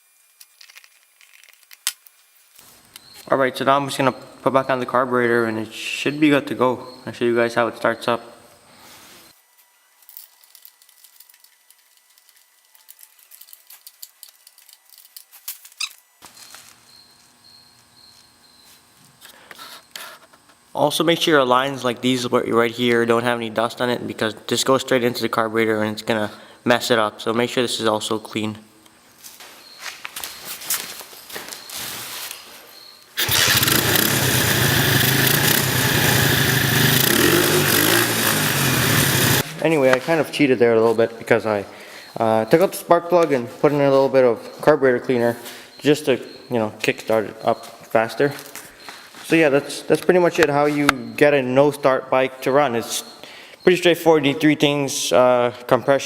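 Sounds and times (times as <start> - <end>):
faint steady hum: 0.0 - 56.0
small motorcycle engine starting and running: 33.2 - 39.4.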